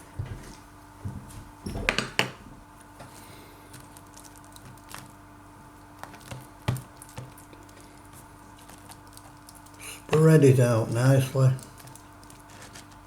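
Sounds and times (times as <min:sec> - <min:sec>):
squishy scraping on toast: 0:05.9 - 0:10.2.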